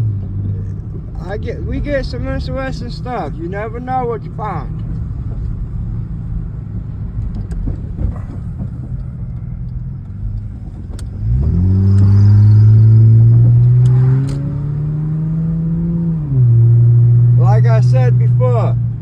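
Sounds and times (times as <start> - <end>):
vehicle road rumble: 0.0 - 19.0
engine accelerating: 10.1 - 18.8.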